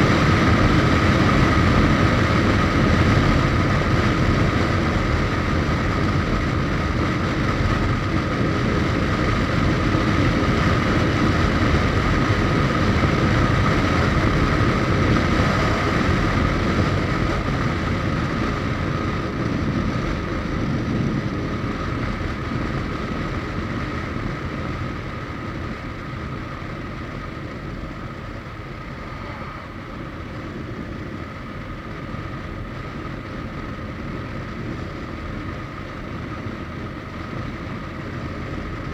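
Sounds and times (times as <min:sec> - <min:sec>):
motorcycle engine rumble: 0:00.0 - 0:38.9
thin steady whine: 0:07.6 - 0:20.4, 0:24.1 - 0:38.9
wind rush: 0:12.4 - 0:18.9, 0:27.6 - 0:32.2.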